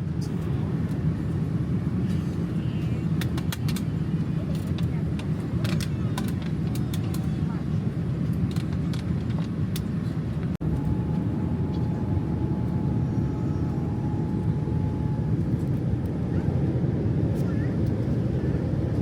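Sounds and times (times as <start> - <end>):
airplane cabin rumble: 0.0 - 19.0
faint steady whine: 10.6 - 16.3.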